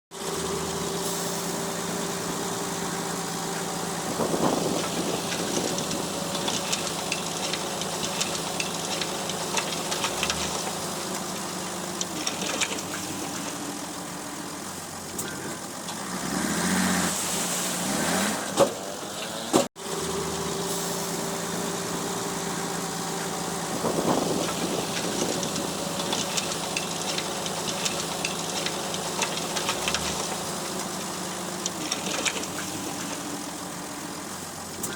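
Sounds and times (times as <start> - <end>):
heavy machine engine running: 0.2 - 34.9
clanks and knocks: 4.4 - 11.4, 23.9 - 33.3.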